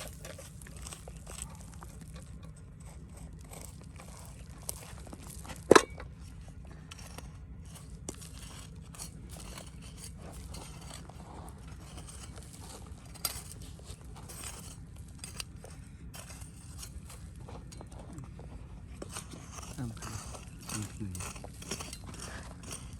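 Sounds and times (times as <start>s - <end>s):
scrapes crunches and clicks: 0.0s - 22.9s.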